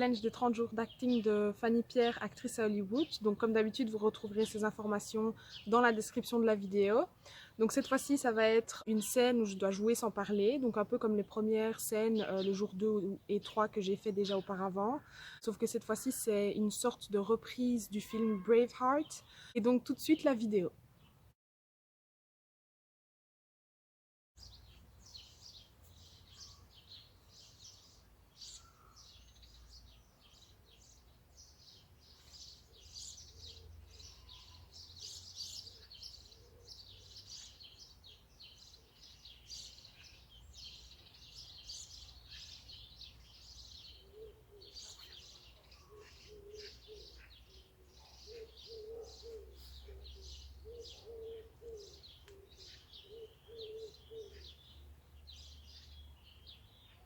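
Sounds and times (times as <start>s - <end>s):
small birds chirping and singing: 0.0s - 21.3s, 24.4s - 57.0s
lower repeated bird notes: 24.4s - 57.0s.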